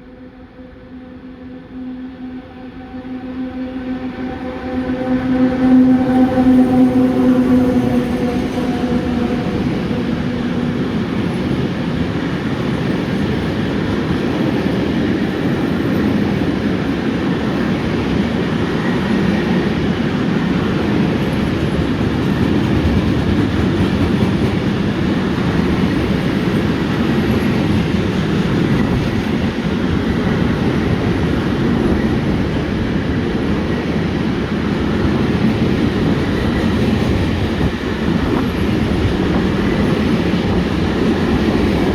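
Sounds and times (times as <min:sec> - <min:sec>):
freight train rumbling past: 0:00.0 - 0:41.9
pitched tone: 0:00.3 - 0:11.7
wheels clattering on rail: 0:18.9 - 0:32.5.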